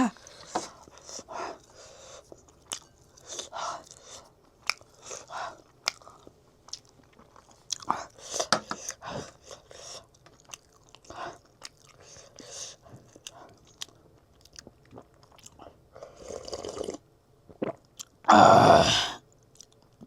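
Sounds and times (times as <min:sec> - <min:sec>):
person chewing food: 0:00.1 - 0:18.2, 0:19.4 - 0:20.0
food crunching: 0:02.3 - 0:08.0, 0:10.2 - 0:12.4.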